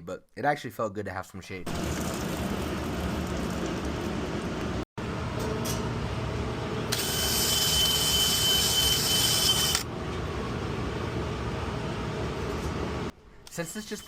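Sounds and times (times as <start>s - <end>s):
steady mechanical hum: 1.8s - 14.0s
power drill whining: 6.9s - 9.9s.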